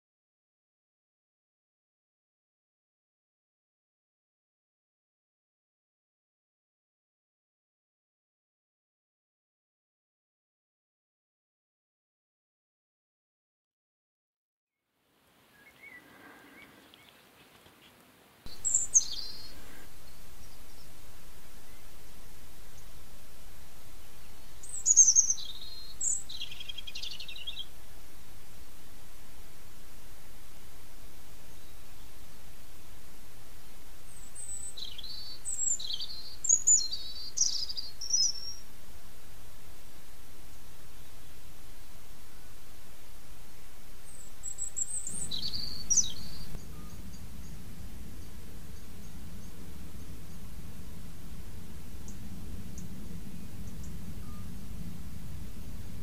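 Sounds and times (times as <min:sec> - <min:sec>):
camera recording hiss: 0:14.9 - 0:56.0
soft bird chirps: 0:15.4 - 0:38.8, 0:43.4 - 0:56.0.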